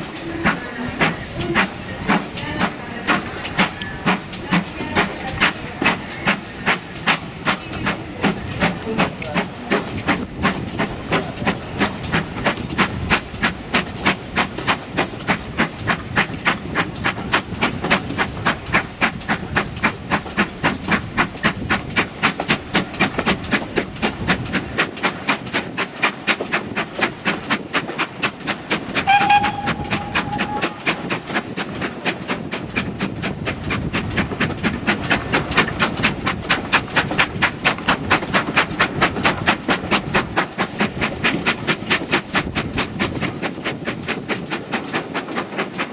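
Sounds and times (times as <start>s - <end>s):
steam train chugging rhythmically: 0.0s - 45.9s.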